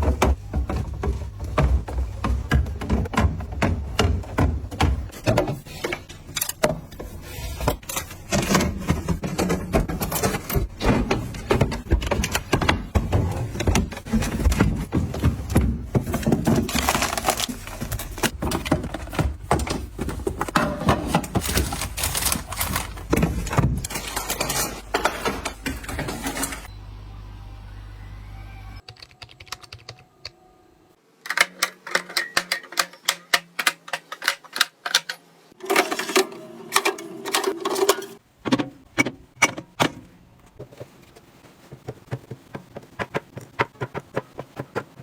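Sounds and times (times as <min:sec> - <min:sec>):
small hard objects clattering: 0:11.5 - 0:26.7.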